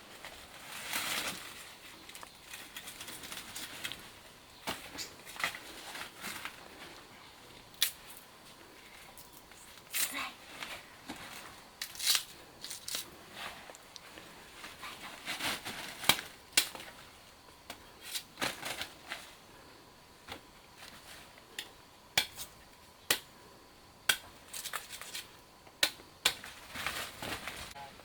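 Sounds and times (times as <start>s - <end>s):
soft rustling: 12.3s - 17.3s.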